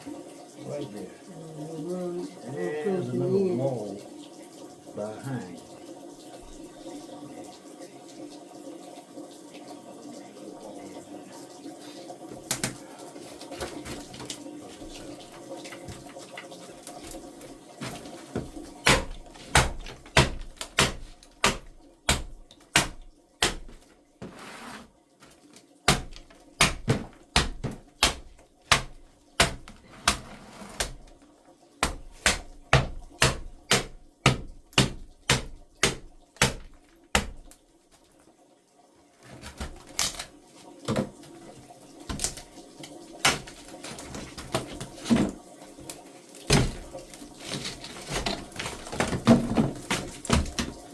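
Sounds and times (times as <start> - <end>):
sharp knocks: 25.9 - 30.2, 31.8 - 37.4.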